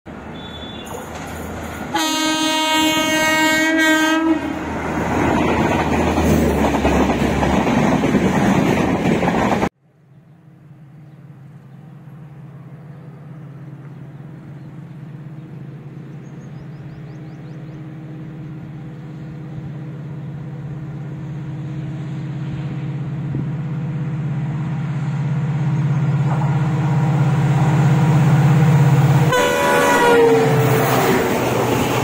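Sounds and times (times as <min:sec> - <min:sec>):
train coaches rushing past: 0:00.1 - 0:09.7, 0:16.8 - 0:32.0
distant diesel locomotive hum: 0:00.1 - 0:32.0
train horn: 0:00.3 - 0:01.0, 0:01.9 - 0:04.7, 0:29.3 - 0:31.2.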